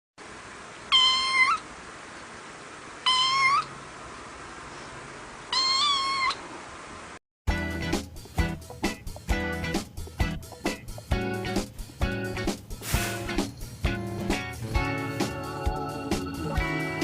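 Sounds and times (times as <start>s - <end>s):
cat meowing: 0.9s - 1.7s, 3.0s - 3.7s, 5.5s - 6.4s
strummed guitar music: 7.5s - 17.0s
steady hiss: 12.5s - 13.8s.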